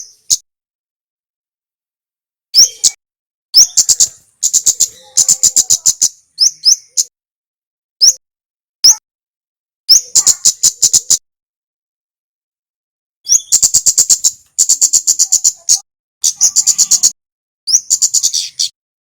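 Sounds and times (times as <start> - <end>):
songbird chirping: 2.6 - 3.0, 3.6 - 7.1, 8.0 - 8.2, 9.9 - 11.2, 13.3 - 18.8
bird ticking notes: 13.3 - 15.7.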